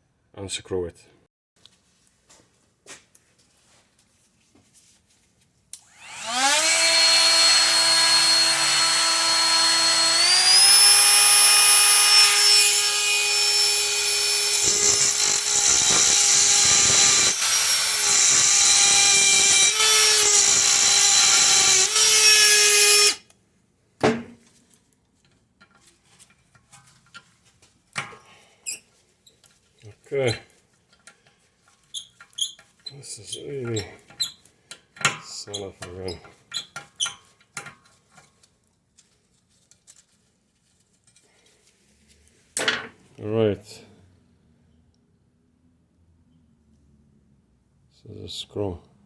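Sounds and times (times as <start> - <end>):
rotary cutting tool whining: 5.8 - 23.2
grinding into metal screw: 6.0 - 23.3.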